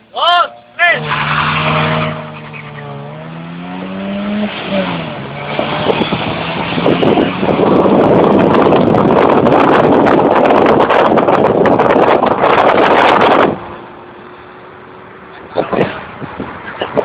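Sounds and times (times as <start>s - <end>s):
roar of vehicles accelerating: 0.0s - 11.1s
car engines running: 0.0s - 17.0s.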